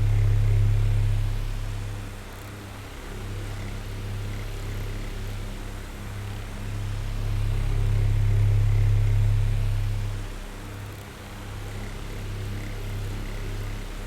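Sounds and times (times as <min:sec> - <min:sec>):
electric fan running: 0:00.0 - 0:02.1.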